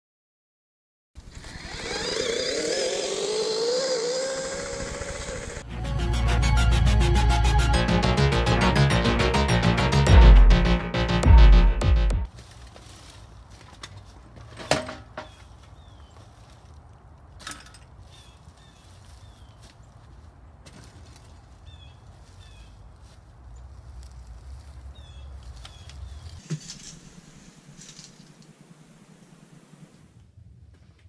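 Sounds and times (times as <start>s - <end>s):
bicycle knocking in dry leaves: 12.3s - 23.2s, 23.8s - 28.7s.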